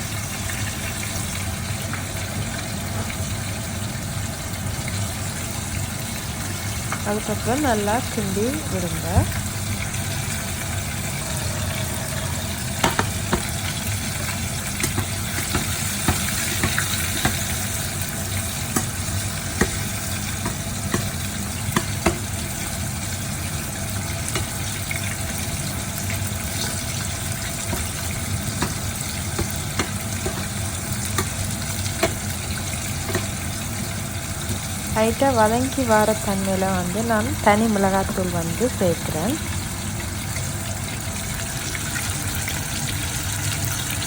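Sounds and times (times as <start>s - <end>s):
vegetables sizzling in hot oil: 0.0s - 44.0s.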